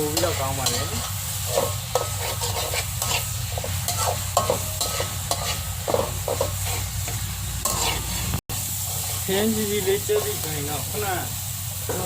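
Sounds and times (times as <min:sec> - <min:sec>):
food sizzling in hot oil: 0:00.0 - 0:12.0
utensil scraping pan: 0:00.1 - 0:09.3.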